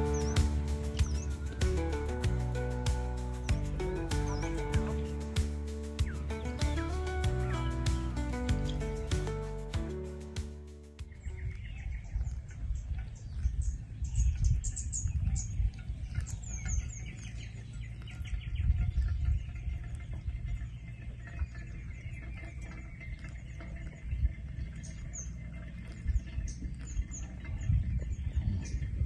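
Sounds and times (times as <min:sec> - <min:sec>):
small birds chirping: 0:00.0 - 0:29.0
wind buffeting microphone: 0:11.0 - 0:29.0.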